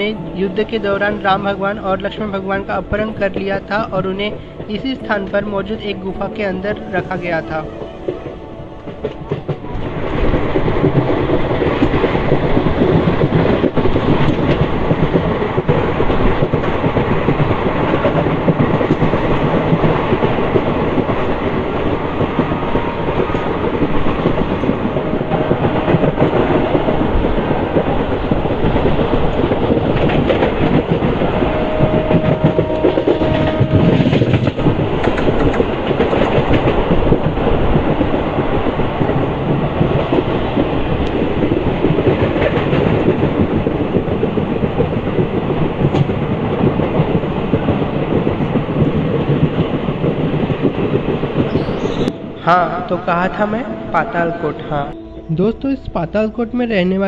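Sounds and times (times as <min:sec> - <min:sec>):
train wheels clattering on rails: 0:08.0 - 0:55.1.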